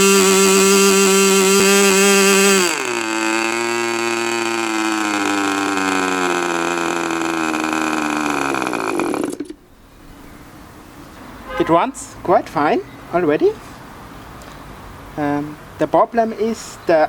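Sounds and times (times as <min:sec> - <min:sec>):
model aircraft engine running: 0:00.0 - 0:09.6.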